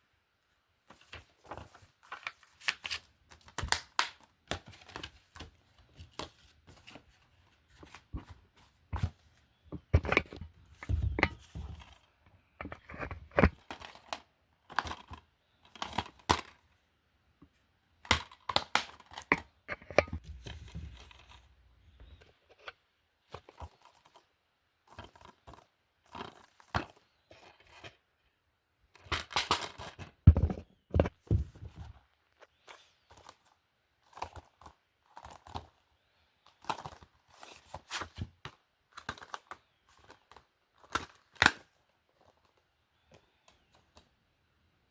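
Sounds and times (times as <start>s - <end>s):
plastic cases clicking and knocking: 7.9s - 16.6s, 18.0s - 21.3s, 29.0s - 31.8s.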